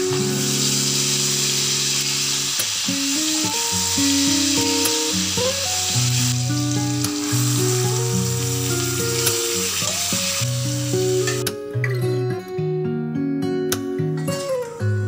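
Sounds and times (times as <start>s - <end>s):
garlic and spices sizzling in oil: 0.0s - 11.4s
instrumental background music: 0.0s - 15.0s.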